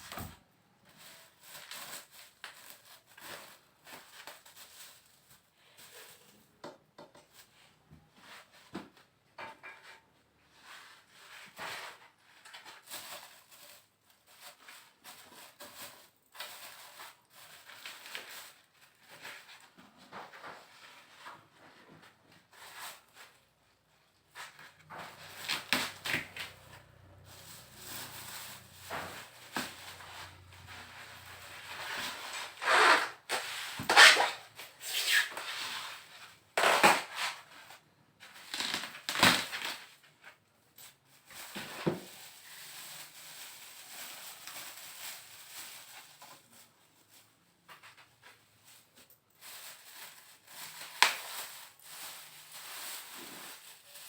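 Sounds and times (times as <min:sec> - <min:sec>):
packaging scrapes and rubs: 0:00.9 - 0:06.4, 0:24.3 - 0:40.0, 0:41.2 - 0:54.0.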